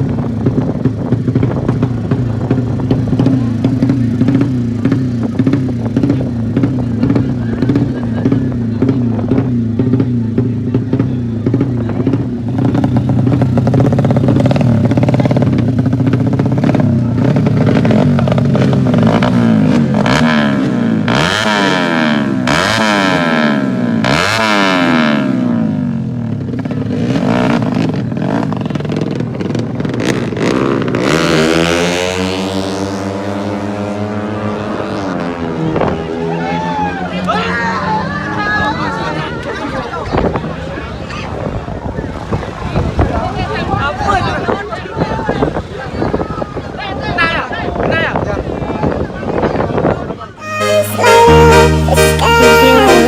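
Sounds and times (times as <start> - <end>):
motocross bike engines revving: 0.0 - 53.0.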